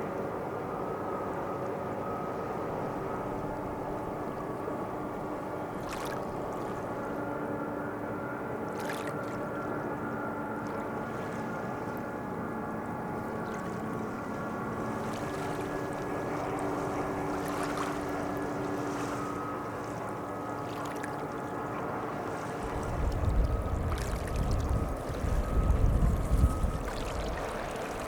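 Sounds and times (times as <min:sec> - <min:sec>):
boat engine humming: 0:00.0 - 0:28.0.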